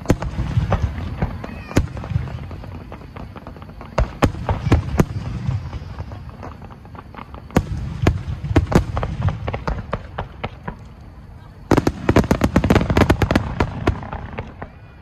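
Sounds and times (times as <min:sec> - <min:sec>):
small firework cracks: 0:00.0 - 0:15.0.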